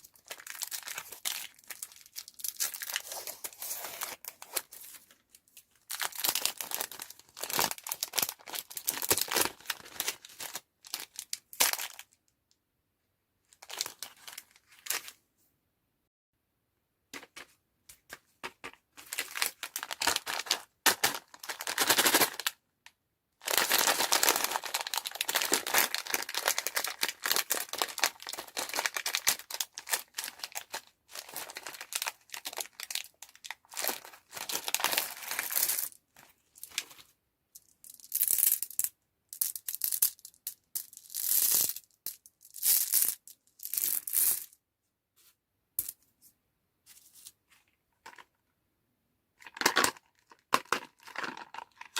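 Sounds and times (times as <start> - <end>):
plastic wrappers crinkling and tearing: 0.0 - 12.2, 13.6 - 15.1, 19.0 - 22.6, 23.4 - 36.0, 49.4 - 51.9.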